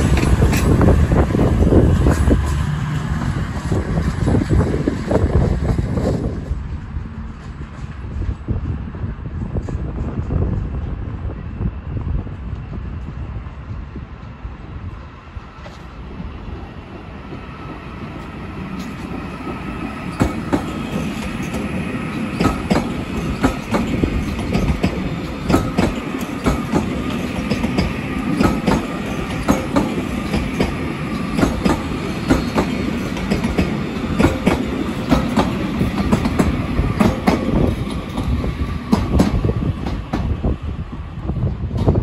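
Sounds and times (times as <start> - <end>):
wheels clicking over rail joints: 0.0 - 4.5, 18.6 - 40.3.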